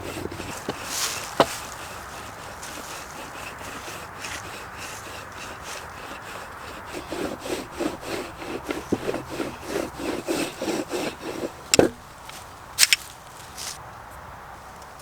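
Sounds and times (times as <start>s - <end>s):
rubbing strokes on wood: 0.0s - 13.8s
sharp knocks: 5.1s - 12.1s.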